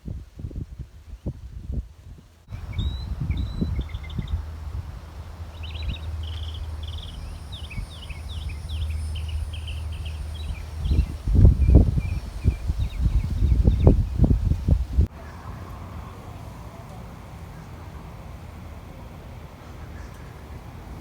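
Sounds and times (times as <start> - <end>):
steady low rumble: 1.4 - 15.1
small songbird chirping: 2.5 - 15.1.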